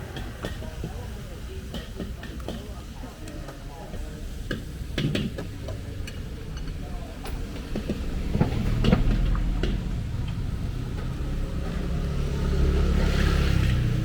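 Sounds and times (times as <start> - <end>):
vehicle engine running: 5.8 - 14.0.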